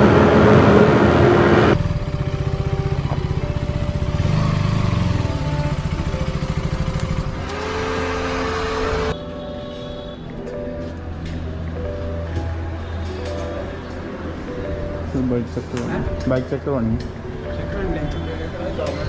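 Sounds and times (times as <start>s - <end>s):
motorcycle engine running: 0.8s - 9.2s.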